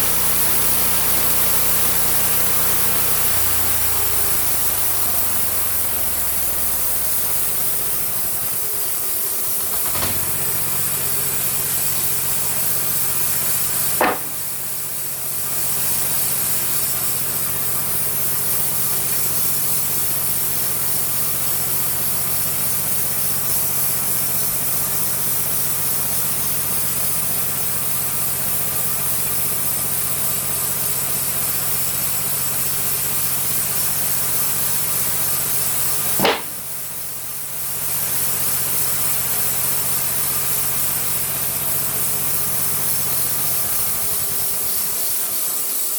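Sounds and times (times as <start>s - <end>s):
sawmill engine humming: 0.0s - 16.8s
saw hissing: 0.0s - 17.3s, 35.2s - 37.0s, 40.4s - 45.9s
sharp knocks: 14.0s - 14.6s, 36.2s - 36.7s.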